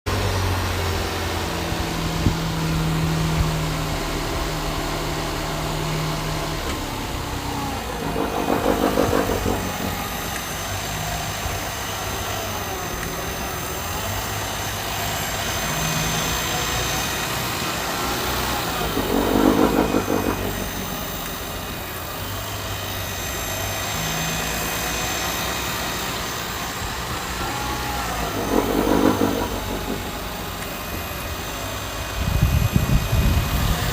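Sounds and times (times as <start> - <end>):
car engine idling: 0.5 - 23.5, 25.2 - 32.2
buzzing noise: 7.8 - 10.7, 18.6 - 22.0, 28.1 - 31.1.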